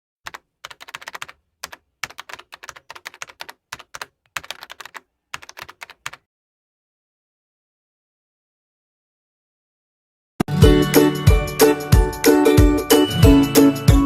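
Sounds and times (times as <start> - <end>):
keyboard typing clicks: 0.3 - 6.2.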